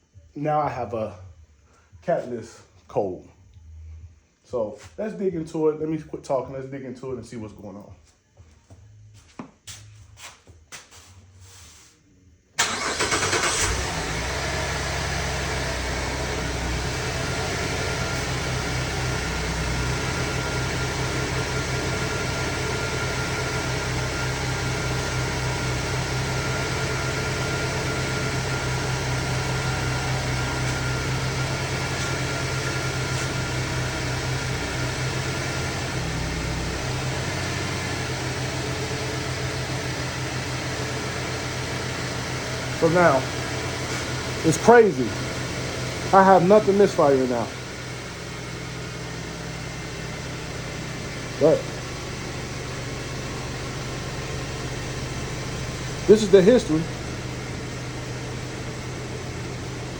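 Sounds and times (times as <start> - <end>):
car engine starting and idling: 12.6 - 59.9.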